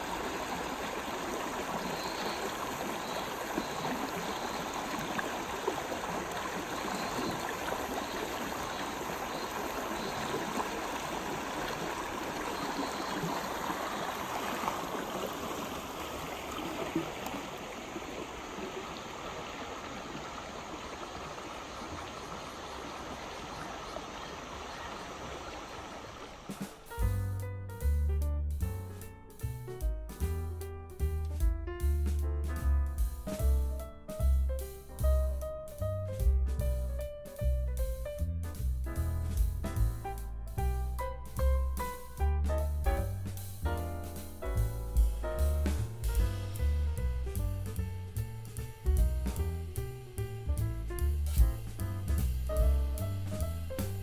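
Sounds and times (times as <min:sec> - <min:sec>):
river water babbling over rocks: 0:00.0 - 0:26.9.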